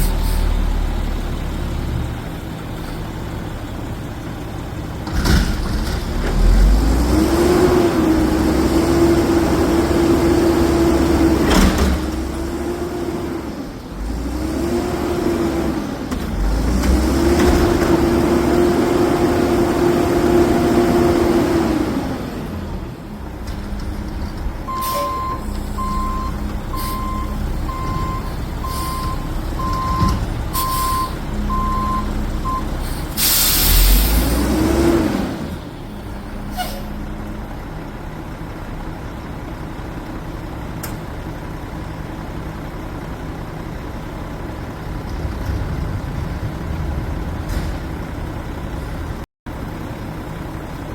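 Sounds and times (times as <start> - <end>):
air brake hiss: 0.0 - 0.7, 32.8 - 34.3, 36.5 - 36.9
garbage truck engine revving: 4.6 - 36.4, 44.3 - 49.2
reversing alarm beeping: 24.7 - 32.8.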